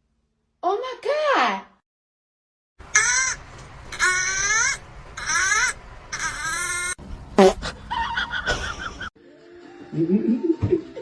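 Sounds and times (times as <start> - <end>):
animal wailing cries: 2.9 - 7.0.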